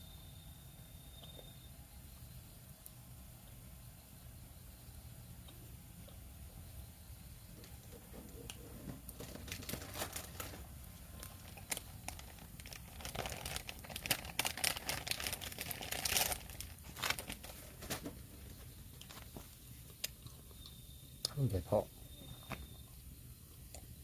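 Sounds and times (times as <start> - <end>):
packaging crinkling and tearing: 9.1 - 18.2.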